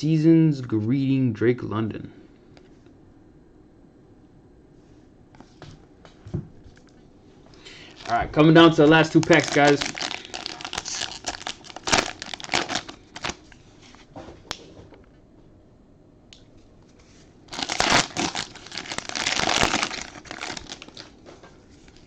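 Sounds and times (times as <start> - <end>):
wrapper crinkling: 7.7 - 14.0, 17.5 - 22.0.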